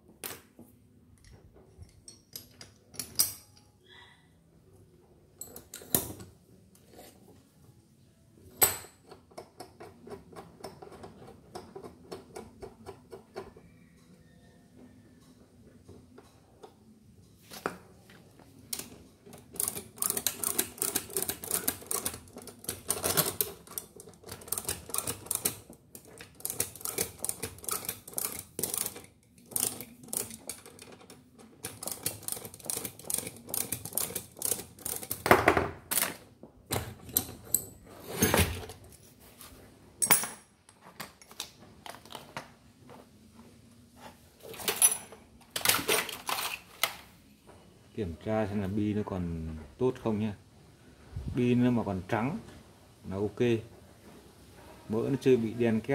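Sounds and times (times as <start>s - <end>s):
small metal parts clicking: 18.7s - 35.3s.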